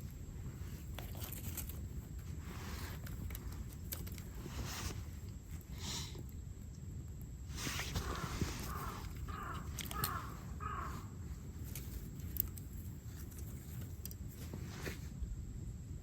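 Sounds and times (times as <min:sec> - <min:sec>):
crow cawing: 0:08.0 - 0:11.2.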